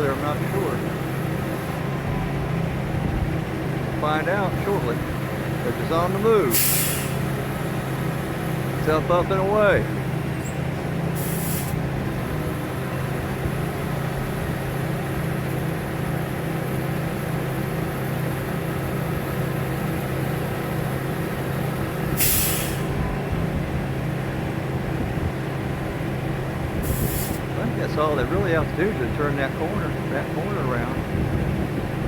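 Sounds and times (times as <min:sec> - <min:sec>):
crane diesel engine running: 0:00.0 - 0:32.0
air hiss bursts: 0:06.5 - 0:07.2.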